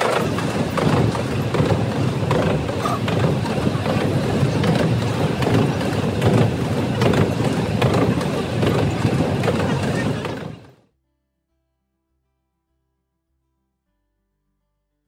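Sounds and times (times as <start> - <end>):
train carriage rumbling on track: 0.0 - 10.8
wheels clattering and rattling: 0.0 - 10.8.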